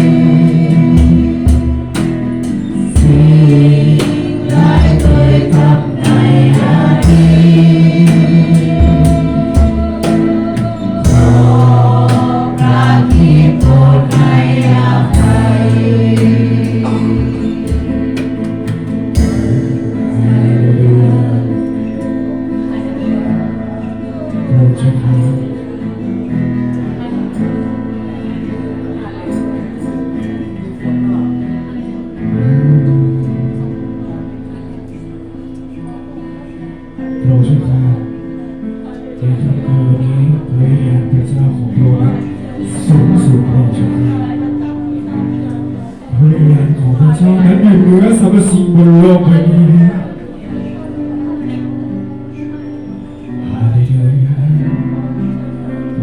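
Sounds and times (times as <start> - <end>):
drums: 0.0 - 20.4
group singing: 0.0 - 21.9
bass guitar: 0.0 - 36.4
worship song by live band: 0.0 - 56.0.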